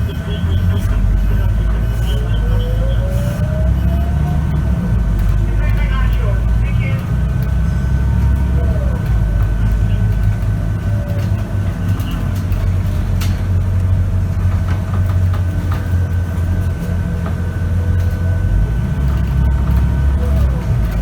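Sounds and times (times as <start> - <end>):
bus diesel engine rumble: 0.0 - 21.0
high whine: 0.0 - 21.0.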